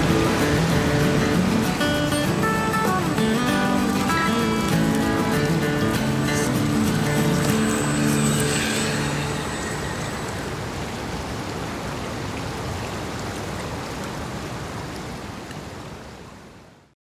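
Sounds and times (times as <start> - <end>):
music: 0.0 - 10.7
hiss of water: 0.0 - 11.8.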